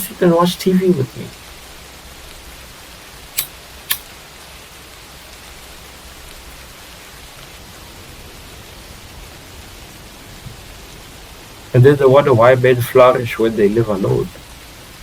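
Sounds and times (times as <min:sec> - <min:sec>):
steady background hiss: 0:00.0 - 0:15.0
sharp click: 0:03.4 - 0:04.1.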